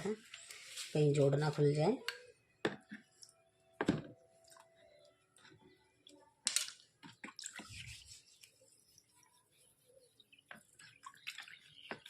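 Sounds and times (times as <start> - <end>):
water splashes and drips: 6.0 - 8.2, 10.4 - 12.0.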